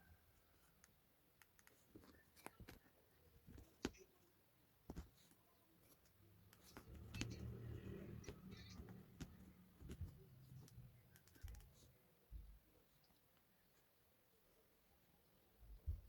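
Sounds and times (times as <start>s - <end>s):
faint clicks and taps: 0.6s - 4.2s, 4.8s - 13.8s.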